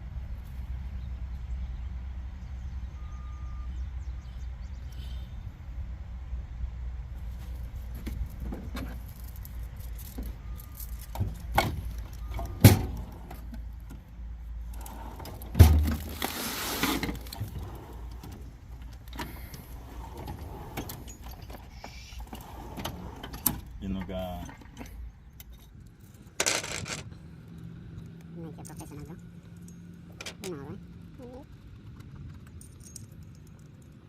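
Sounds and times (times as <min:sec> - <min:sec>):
metal clinks of tools: 0:32.5 - 0:34.0.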